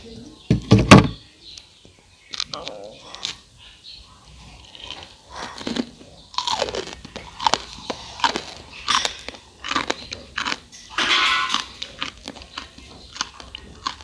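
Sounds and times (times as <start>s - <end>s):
crunching fried snack: 4.4s - 14.0s.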